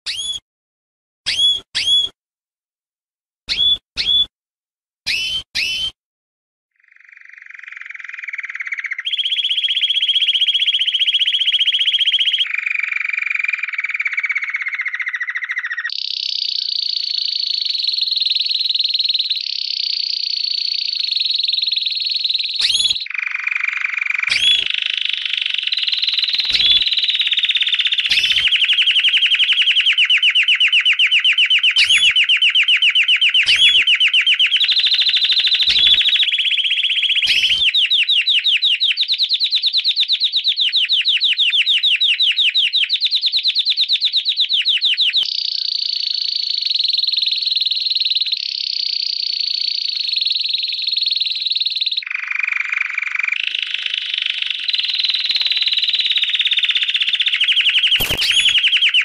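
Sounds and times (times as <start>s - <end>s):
lovebird chattering trills: 0.1s - 0.4s, 5.1s - 5.9s, 26.4s - 26.8s, 28.1s - 28.6s, 31.6s - 34.6s, 35.6s - 36.2s, 58.0s - 59.0s
short rising bird chirps: 0.1s - 0.4s, 1.3s - 2.2s, 3.5s - 4.3s, 5.1s - 6.0s, 22.6s - 23.2s, 24.3s - 25.2s, 26.3s - 27.0s, 28.0s - 30.6s, 31.6s - 38.0s, 57.6s - 59.0s.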